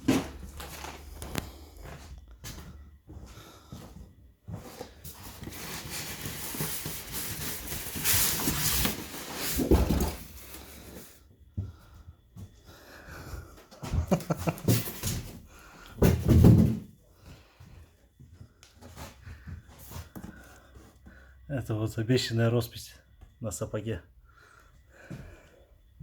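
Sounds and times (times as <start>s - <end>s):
packaging scraping and rustling: 4.8s - 10.9s.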